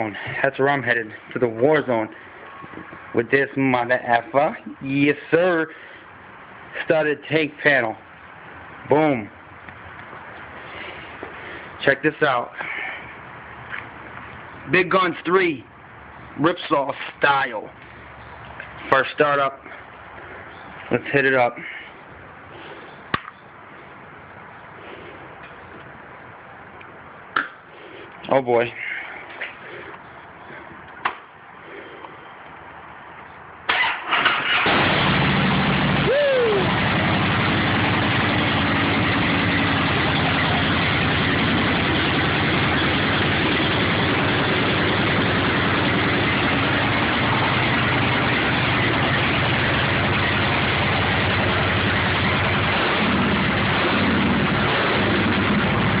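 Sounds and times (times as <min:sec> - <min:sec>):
motorcycle engine idling: 0:36.6 - 0:56.0.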